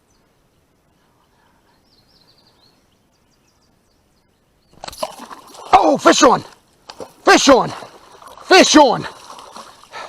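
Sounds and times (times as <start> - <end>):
faint bird chirping: 0.0 - 5.6.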